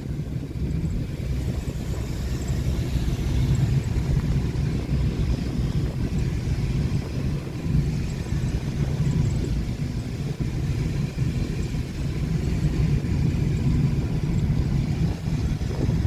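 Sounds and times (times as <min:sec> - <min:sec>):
vehicle engine rumble: 0:00.0 - 0:16.0
wind noise on microphone: 0:00.0 - 0:16.0.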